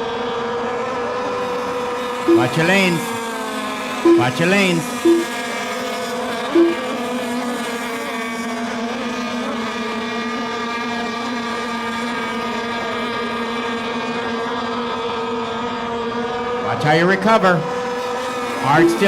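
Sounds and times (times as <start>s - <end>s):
short loud beep: 2.3s - 3.0s, 4.1s - 5.3s, 6.6s - 6.8s, 18.7s - 19.0s
model boat engines droning: 5.6s - 19.0s.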